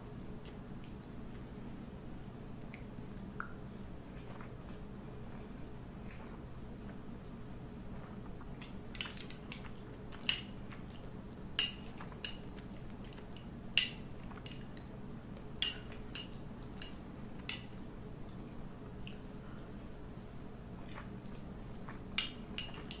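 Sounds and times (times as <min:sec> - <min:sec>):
faint steady hum: 0:00.0 - 0:23.0
utensils clinking against dishes: 0:08.9 - 0:10.5, 0:11.6 - 0:14.7, 0:15.6 - 0:17.7, 0:22.2 - 0:23.0.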